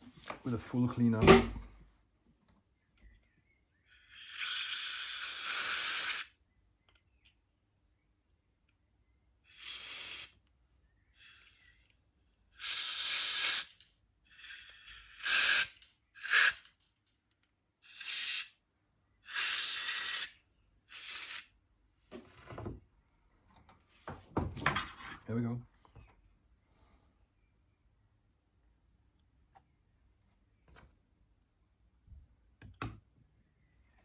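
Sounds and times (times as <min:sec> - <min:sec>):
compressed air bursts hissing: 0:09.5 - 0:10.3, 0:11.2 - 0:11.9, 0:12.5 - 0:13.7, 0:14.3 - 0:16.6, 0:17.8 - 0:18.5, 0:19.3 - 0:20.3, 0:20.9 - 0:21.4.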